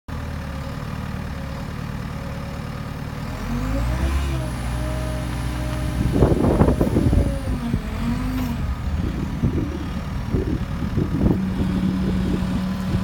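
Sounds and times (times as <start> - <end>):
diesel engine revving: 2.7 - 13.0.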